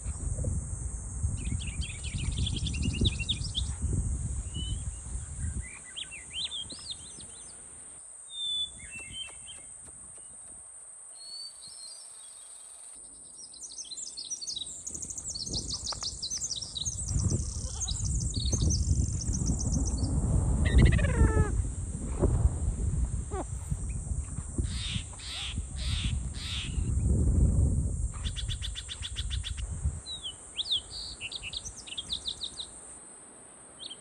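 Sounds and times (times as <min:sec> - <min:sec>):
steady high hiss: 0:00.0 - 0:34.0
birds chirping and trilling: 0:13.2 - 0:21.6
low rumble: 0:18.5 - 0:24.8.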